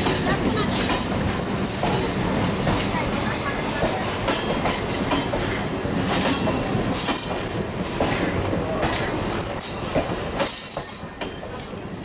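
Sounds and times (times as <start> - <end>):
wheels clacking over rail joints: 0.0 - 11.8
train rolling rumble: 0.0 - 12.0.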